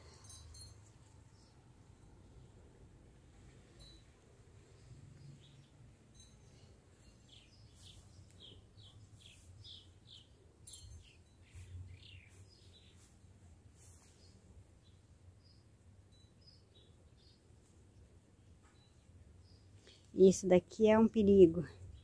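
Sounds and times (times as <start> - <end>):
faint bird chirping: 0.1 - 20.3.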